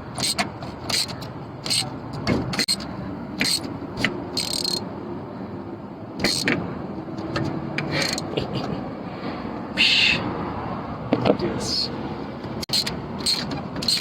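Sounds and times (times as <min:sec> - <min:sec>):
metal clicks and scrapes: 0:00.1 - 0:04.8, 0:06.2 - 0:06.6, 0:12.5 - 0:14.0.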